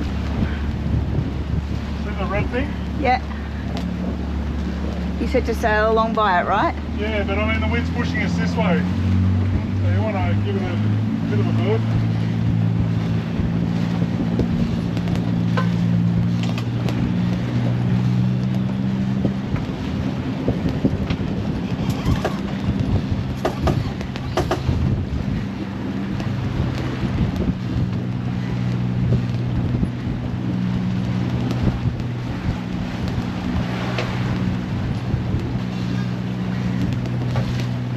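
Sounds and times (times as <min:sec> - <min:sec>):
wind buffeting microphone: 0:00.0 - 0:07.5, 0:08.5 - 0:37.9
boat engine droning: 0:00.0 - 0:37.9
diesel engine running: 0:21.0 - 0:26.7.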